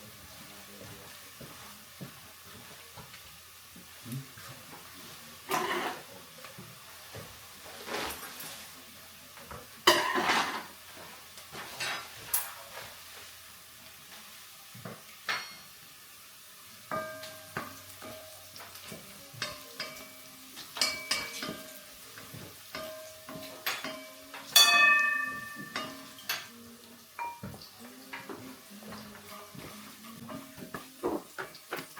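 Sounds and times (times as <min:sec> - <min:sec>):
vegetables sizzling: 0:00.0 - 0:31.9
utensil scraping frying pan: 0:04.8 - 0:06.1, 0:06.9 - 0:08.8, 0:09.8 - 0:13.4, 0:16.9 - 0:26.6.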